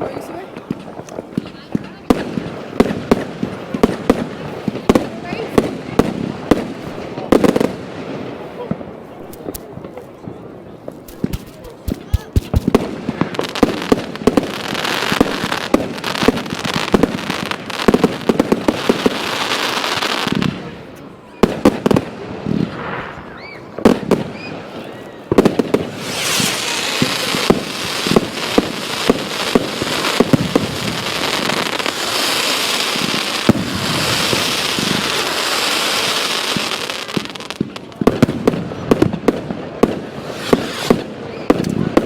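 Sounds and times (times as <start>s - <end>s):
fireworks banging: 0.0s - 42.0s
fireworks crackling fizz: 0.0s - 42.0s
fireworks whistling: 10.9s - 20.5s, 21.3s - 42.0s.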